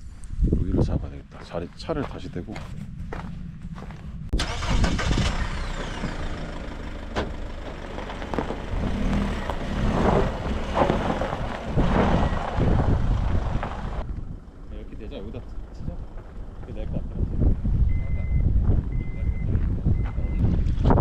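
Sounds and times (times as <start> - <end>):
car engine running: 2.1 - 17.6.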